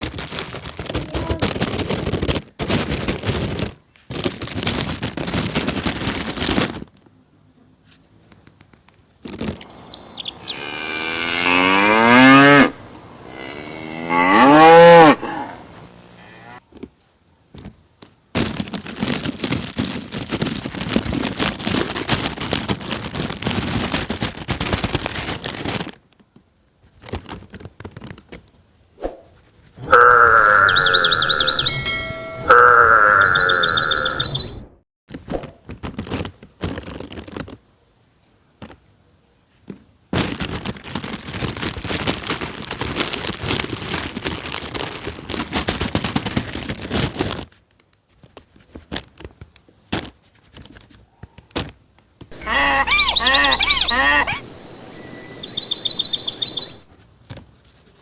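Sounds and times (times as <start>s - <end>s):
cow mooing: 10.5s - 15.6s, 29.8s - 31.6s, 32.4s - 34.2s.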